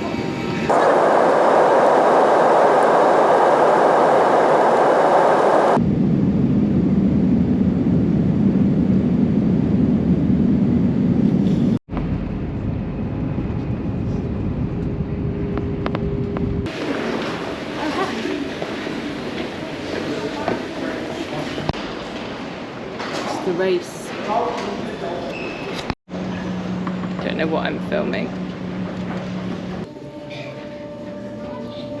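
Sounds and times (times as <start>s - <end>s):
vehicle travel noise: 0.7s - 5.8s.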